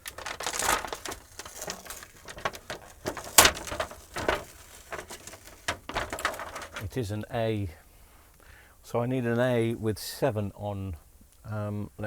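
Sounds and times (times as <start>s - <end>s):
clicks and rustling of strips: 0.0s - 7.0s.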